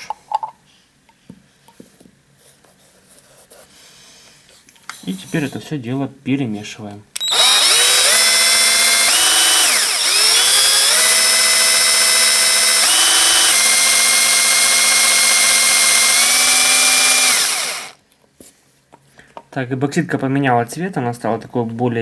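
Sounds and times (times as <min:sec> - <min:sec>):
cordless drill motor whine: 0:07.2 - 0:18.0.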